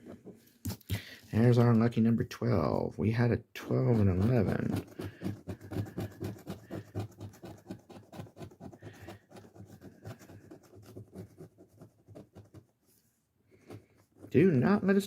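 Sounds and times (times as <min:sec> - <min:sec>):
scraping scratch ticket: 0:03.6 - 0:12.6.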